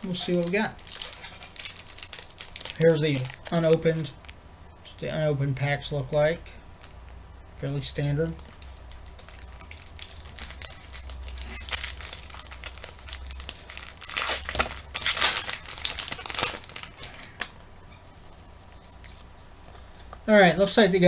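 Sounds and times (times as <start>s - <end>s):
wrapper tearing and crinkling: 0.0s - 4.4s, 8.2s - 17.6s.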